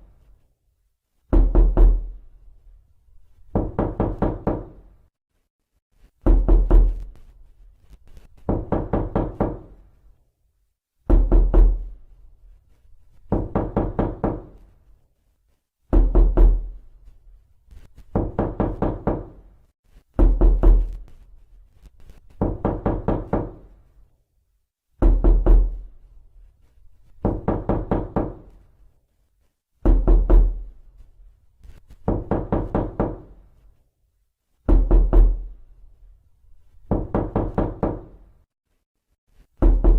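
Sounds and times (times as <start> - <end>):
quick knocking on a door: 1.3 - 2.2, 3.5 - 4.8, 6.2 - 7.1, 8.4 - 9.8, 11.1 - 11.9, 13.3 - 14.6, 15.9 - 16.8, 18.1 - 19.4, 20.1 - 21.0, 22.4 - 23.6, 25.0 - 25.8, 27.2 - 28.5, 29.8 - 30.7, 32.0 - 33.4, 34.7 - 35.5, 36.8 - 38.2, 39.6 - 39.9.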